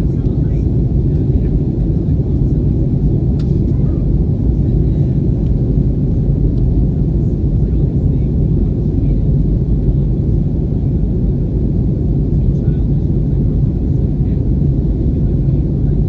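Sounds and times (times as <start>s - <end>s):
jet engine cabin rumble: 0.0s - 16.0s.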